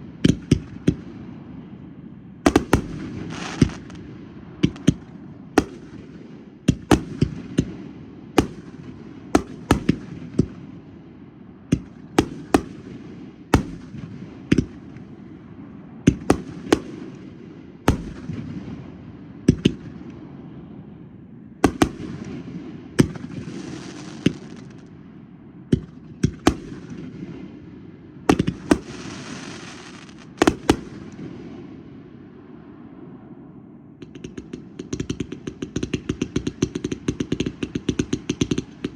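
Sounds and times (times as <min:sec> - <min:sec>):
distant fireworks din: 0:00.0 - 0:20.2, 0:21.6 - 0:25.0, 0:25.7 - 0:32.3, 0:34.0 - 0:38.9
sharp firework bangs: 0:02.5 - 0:10.7, 0:11.7 - 0:15.0, 0:16.1 - 0:18.8, 0:21.6 - 0:24.8, 0:28.3 - 0:31.8
firework hiss: 0:03.2 - 0:03.9, 0:28.7 - 0:30.6.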